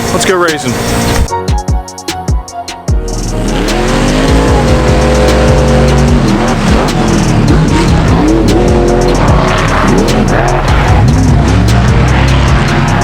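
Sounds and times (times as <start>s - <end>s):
monster truck engine revving: 3.1s - 13.0s.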